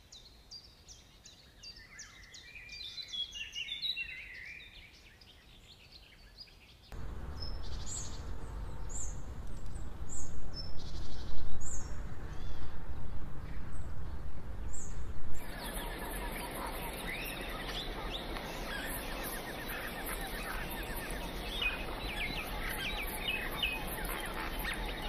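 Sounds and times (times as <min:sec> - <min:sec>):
steady background noise: 0:07.0 - 0:25.0
birds chirping and singing: 0:13.5 - 0:25.0.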